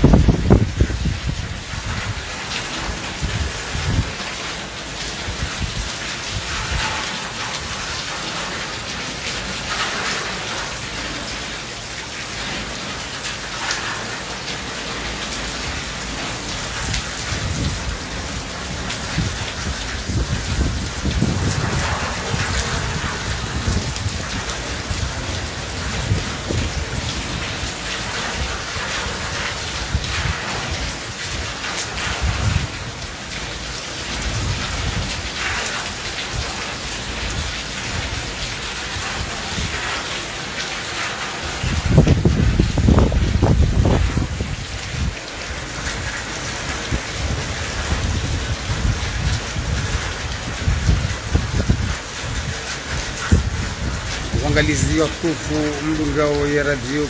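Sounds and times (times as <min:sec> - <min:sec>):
heavy rain pattering: 0:00.0 - 0:57.0.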